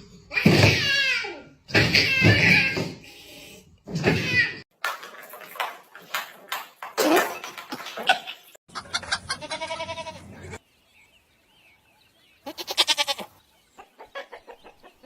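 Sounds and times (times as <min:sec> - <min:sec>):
goat bleating: 0:08.8 - 0:10.6, 0:12.4 - 0:13.3.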